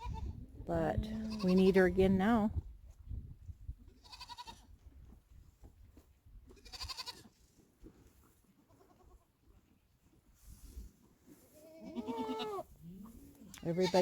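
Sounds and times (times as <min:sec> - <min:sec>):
goats bleating: 0:01.0 - 0:01.7, 0:11.6 - 0:12.6, 0:13.6 - 0:14.0.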